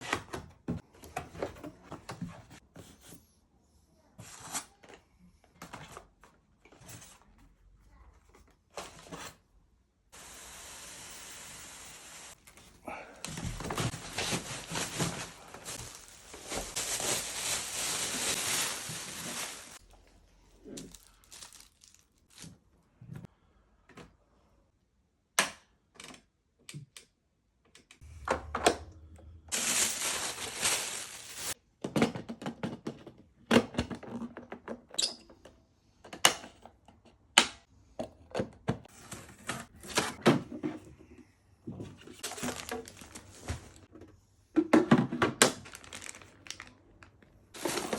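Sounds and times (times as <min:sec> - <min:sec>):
plastic wrapping crinkling and tearing: 0:13.7 - 0:19.8, 0:20.7 - 0:22.6, 0:29.5 - 0:31.6, 0:42.2 - 0:43.9, 0:45.5 - 0:47.9.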